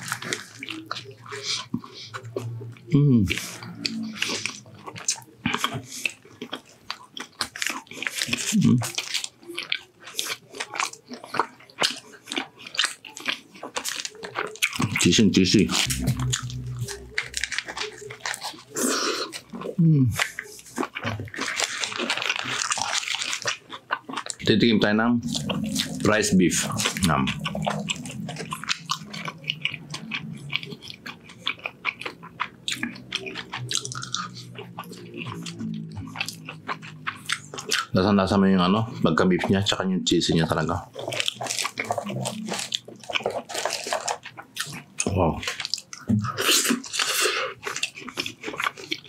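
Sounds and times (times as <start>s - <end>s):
person chewing food: 0.0s - 49.0s.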